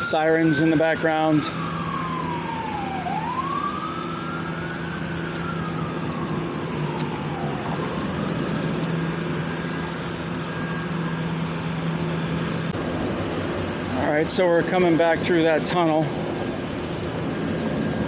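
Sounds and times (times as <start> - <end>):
siren wailing: 0.0 - 12.7
steady low hum: 0.0 - 18.0.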